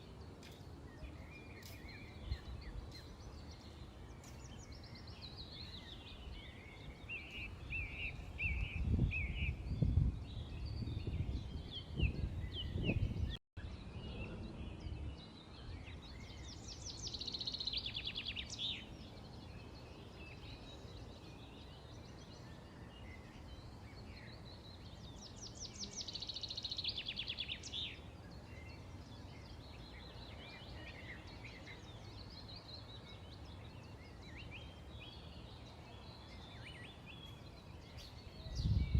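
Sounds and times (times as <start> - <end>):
small birds chirping: 0.0 - 38.9
low gusty rumble: 38.4 - 38.9.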